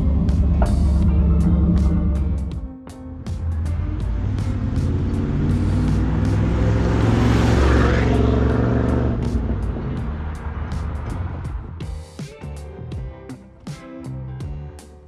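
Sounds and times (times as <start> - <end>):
car engine and tyres passing: 0.0 - 2.6, 3.2 - 11.8.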